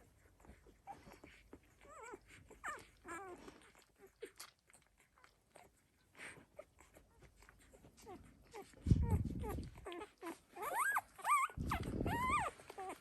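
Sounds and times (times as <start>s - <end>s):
puppies squeaking and whimpering: 0.0s - 13.0s
soft shuffling: 5.8s - 13.0s.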